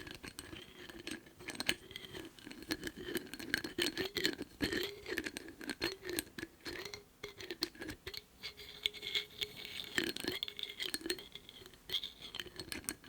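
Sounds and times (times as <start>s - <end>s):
tapping and clicking on a lid: 2.6s - 8.2s.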